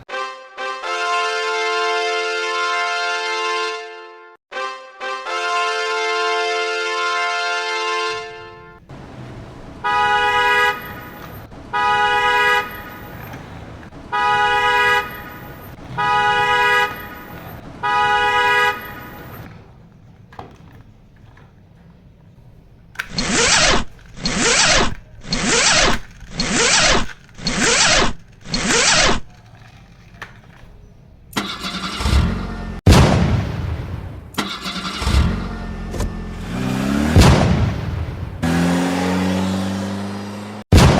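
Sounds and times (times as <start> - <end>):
horn honking: 0.0 - 19.7, 23.0 - 29.3, 31.4 - 32.8, 34.4 - 37.5
short harsh noisy bursts: 23.0 - 29.4.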